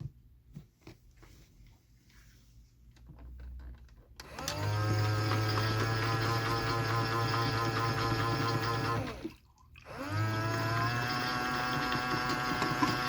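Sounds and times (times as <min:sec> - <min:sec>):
pump motor whine and hum: 0:04.2 - 0:13.0.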